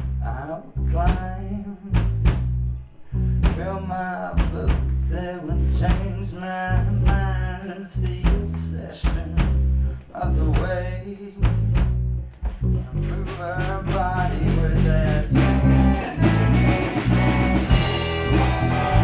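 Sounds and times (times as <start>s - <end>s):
person singing: 13.2s - 19.0s
rock band playing: 15.3s - 19.0s.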